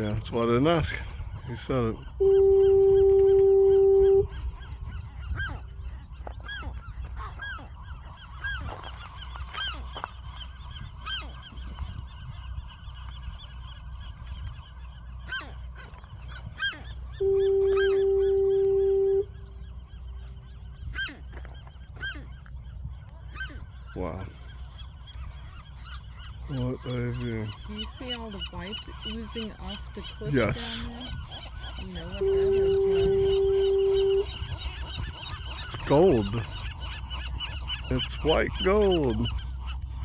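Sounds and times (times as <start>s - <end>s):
gulls calling: 0.0s - 40.0s
fog horn low tone: 1.6s - 6.3s, 16.4s - 21.6s, 30.0s - 39.9s.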